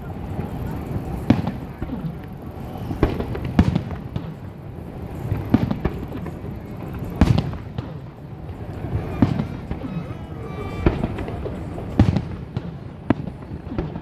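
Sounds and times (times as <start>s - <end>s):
continuous low rumble: 0.0s - 14.0s
fireworks bangs echoing: 0.0s - 14.0s.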